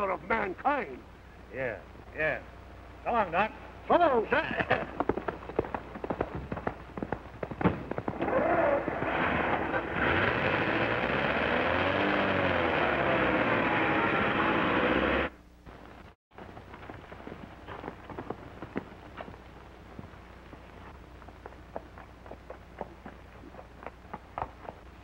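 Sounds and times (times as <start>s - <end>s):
faint galloping hoofbeats: 3.4s - 8.4s, 15.7s - 25.0s
car engine sputtering and popping: 4.4s - 15.3s.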